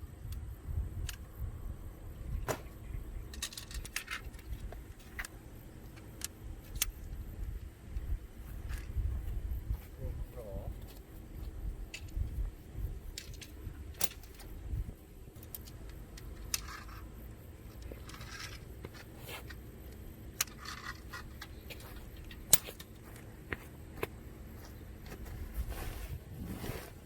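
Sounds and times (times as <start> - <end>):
tent gear clicking and rattling: 3.3 - 9.1, 13.0 - 24.2
gear rustling: 10.8 - 27.0.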